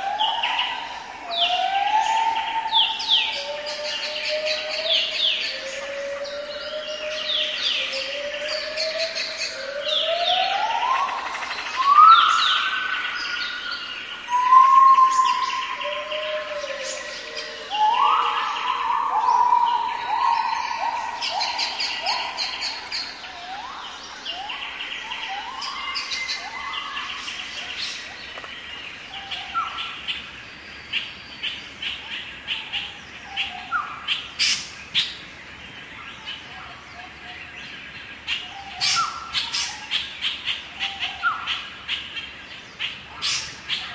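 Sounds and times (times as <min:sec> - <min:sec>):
birds whistling upward notes: 0:00.0 - 0:28.1.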